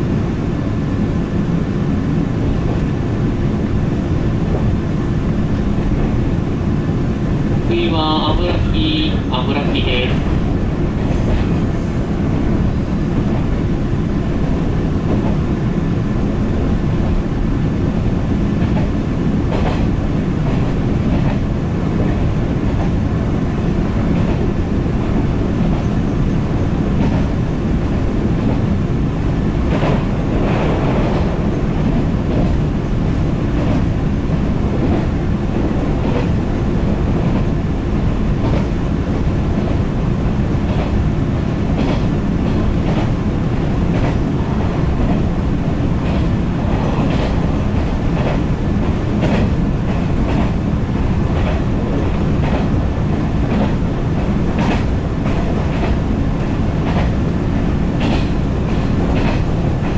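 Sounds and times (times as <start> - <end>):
train wheels rumbling on rail: 0.0 - 59.9
rail joint clacks: 7.6 - 11.8, 14.4 - 15.5, 17.9 - 59.9.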